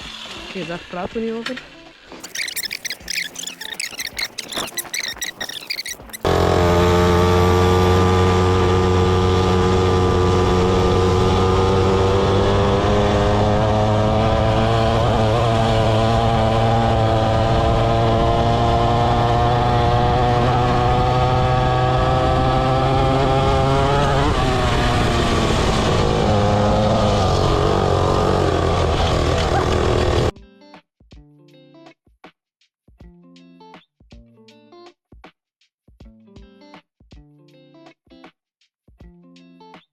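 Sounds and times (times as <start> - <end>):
pit bike engine running: 2.3 - 30.3.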